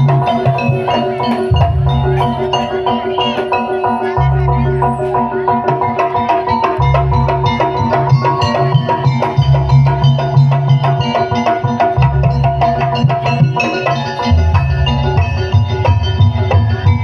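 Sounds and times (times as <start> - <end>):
drums with deep low tones: 0.0 - 17.0
metallophones hammering fast pattern: 0.0 - 17.0.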